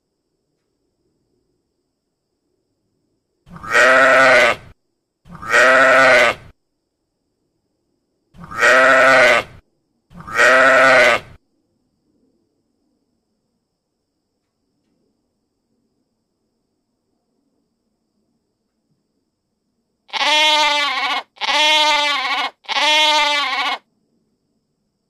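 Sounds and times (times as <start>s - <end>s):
sheep bleating: 3.6s - 4.6s, 5.3s - 6.5s, 8.4s - 9.6s, 10.2s - 11.4s, 20.1s - 23.8s.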